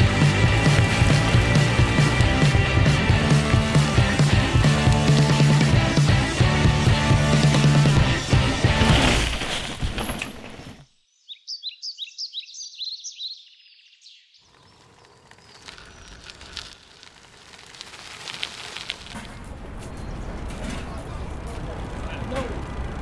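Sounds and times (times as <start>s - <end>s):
music: 0.0s - 9.0s
small bird chirping: 11.0s - 16.9s.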